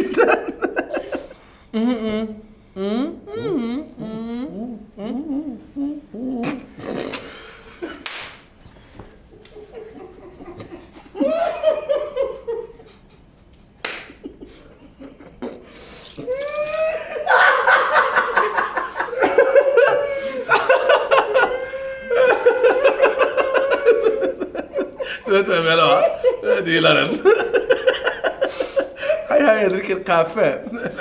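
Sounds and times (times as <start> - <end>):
hearty laughter: 0.0 - 1.4, 9.3 - 29.4
sharp smack: 8.0 - 8.4.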